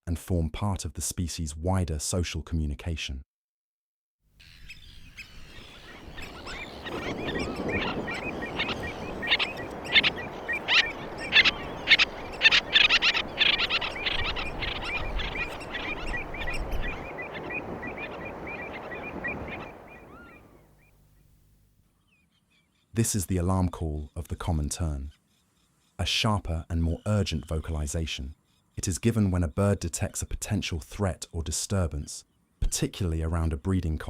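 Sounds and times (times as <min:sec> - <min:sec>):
terns calling: 0:04.4 - 0:21.4.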